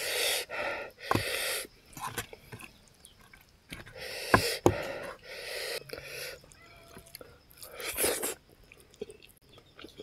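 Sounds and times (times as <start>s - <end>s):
wet chewing: 5.8s - 10.0s.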